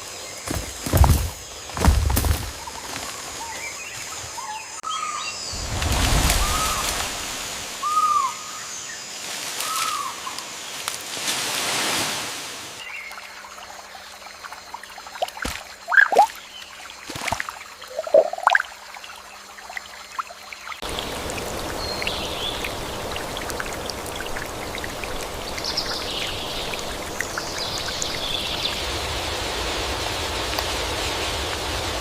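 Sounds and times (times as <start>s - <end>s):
flowing water: 5.6s - 8.3s, 12.8s - 32.0s
water dripping and plopping: 13.1s - 28.8s
faint high chirps: 15.9s - 16.3s.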